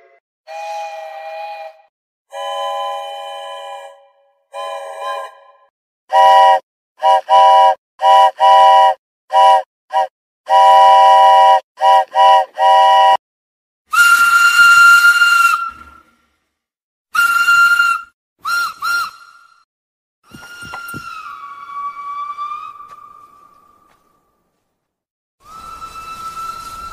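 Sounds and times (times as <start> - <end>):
single-note steam whistle: 0.0 - 13.2, 13.9 - 15.9, 17.2 - 19.4, 25.4 - 26.9
steam locomotive chime whistle: 0.0 - 13.2, 25.4 - 26.9
steam hissing: 25.5 - 26.9.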